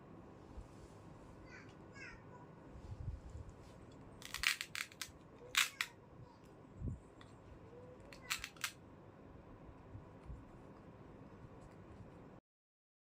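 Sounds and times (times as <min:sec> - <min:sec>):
plastic toy pieces clicking: 0:04.2 - 0:05.9, 0:08.1 - 0:08.8.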